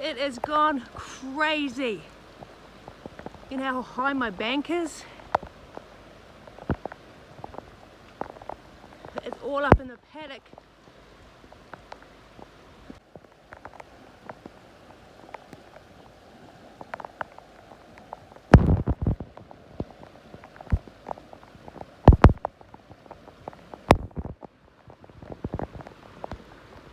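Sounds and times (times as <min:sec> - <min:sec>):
heavy rain falling: 0:00.0 - 0:26.9
loud thumps near microphone: 0:18.6 - 0:19.2, 0:22.1 - 0:22.4
sharp knocks: 0:22.1 - 0:22.4.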